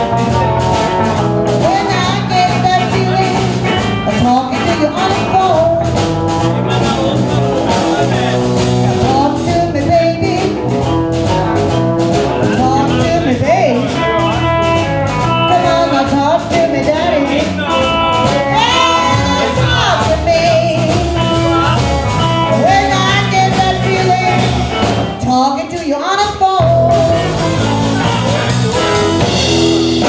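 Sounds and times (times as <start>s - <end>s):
lead guitar bent notes: 0.0s - 25.5s, 26.6s - 30.0s
blues-rock band playing: 0.0s - 30.0s.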